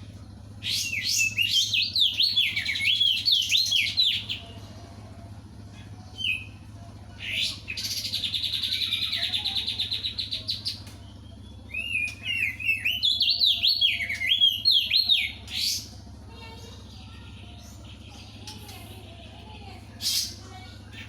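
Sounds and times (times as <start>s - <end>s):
bird trilling: 0.5s - 4.6s, 5.6s - 18.9s, 19.8s - 21.0s
bird whistled notes: 7.2s - 15.9s.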